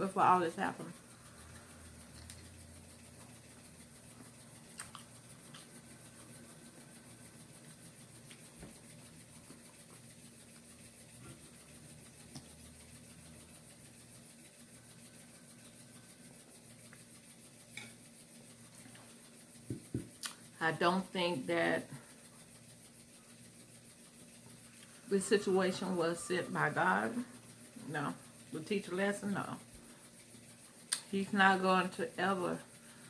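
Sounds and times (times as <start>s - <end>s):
person chewing: 2.1s - 2.5s, 4.6s - 5.8s.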